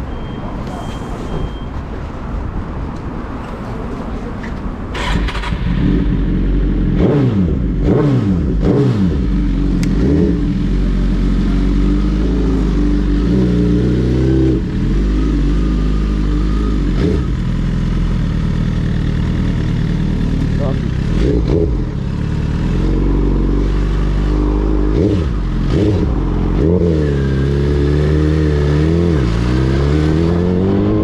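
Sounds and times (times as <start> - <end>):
motorcycle engine running: 5.4 - 28.4.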